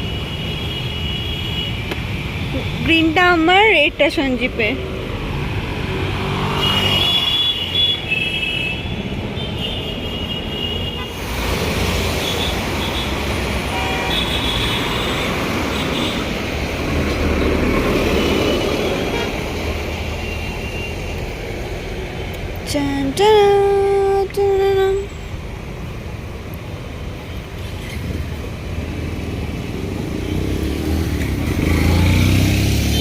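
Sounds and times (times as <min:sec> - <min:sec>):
road traffic rumble: 0:00.0 - 0:33.0
vehicle horns tooting: 0:06.5 - 0:11.3, 0:12.2 - 0:16.3.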